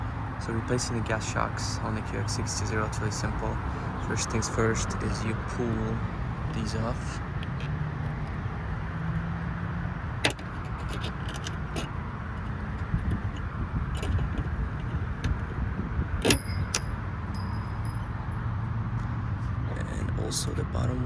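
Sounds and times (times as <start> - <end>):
steady low rumble: 0.0 - 18.8
metallic clicks of strut fittings: 10.2 - 15.6.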